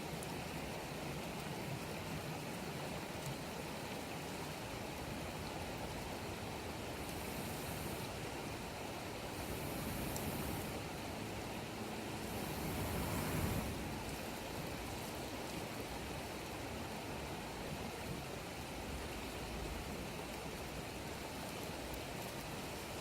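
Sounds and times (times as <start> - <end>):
campfire burning: 1.2 - 16.2.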